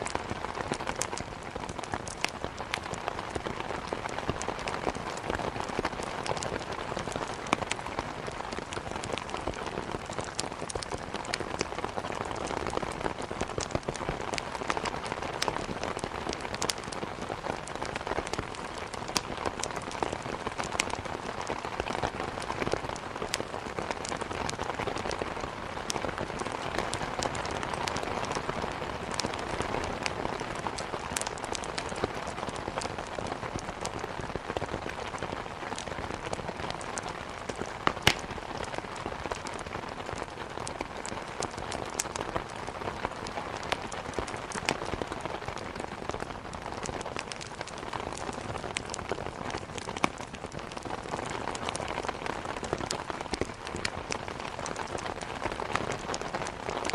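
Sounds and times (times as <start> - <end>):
firewood popping and crackling: 0.0 - 28.4, 29.0 - 56.9
steady rain: 0.0 - 56.9.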